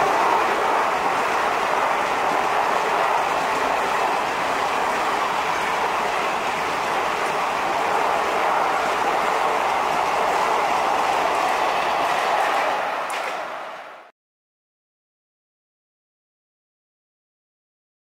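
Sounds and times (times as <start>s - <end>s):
train wheels rumbling on rails: 0.0s - 14.1s.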